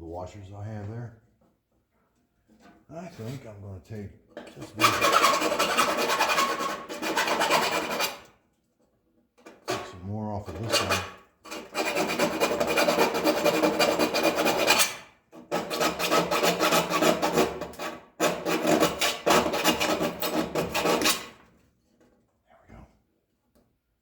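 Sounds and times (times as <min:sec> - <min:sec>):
hand file rasping on metal: 0:04.5 - 0:08.4, 0:09.5 - 0:21.5.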